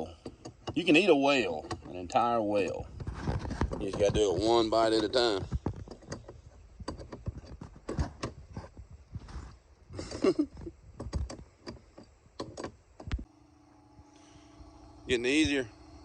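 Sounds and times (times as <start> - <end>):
steering cables clicking and knocking: 0.1 - 8.8, 10.6 - 13.3.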